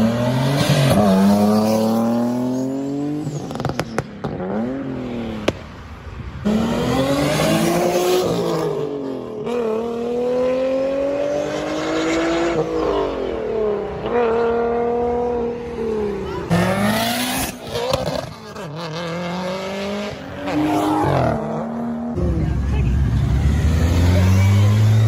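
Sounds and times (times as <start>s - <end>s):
car engine accelerating hard: 16.4s - 25.0s.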